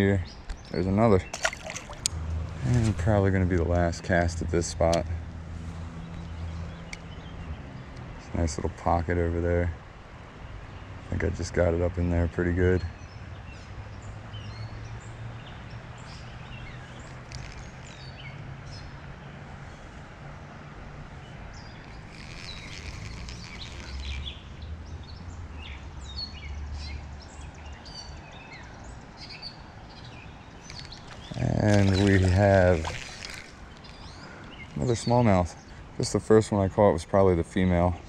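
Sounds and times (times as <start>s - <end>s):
songbirds chirping: 0.0s - 38.0s.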